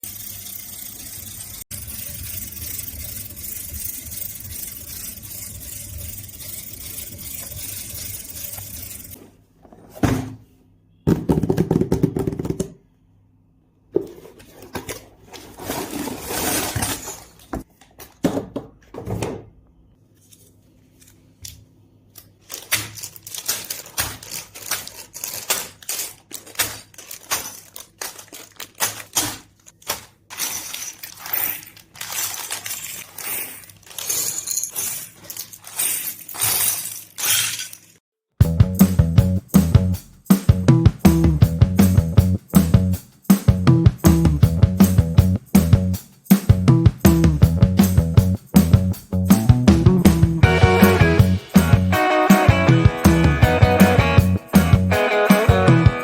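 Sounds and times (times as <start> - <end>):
plastic bricks clicking and clattering: 22.2 - 38.0.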